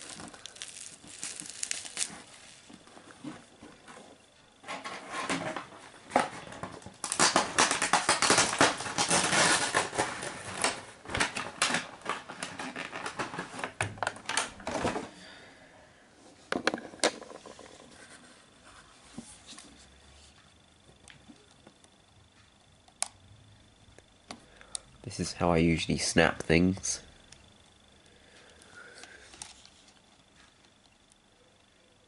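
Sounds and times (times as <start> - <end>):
plastic packaging crinkling: 0.0 - 3.8, 4.8 - 14.9.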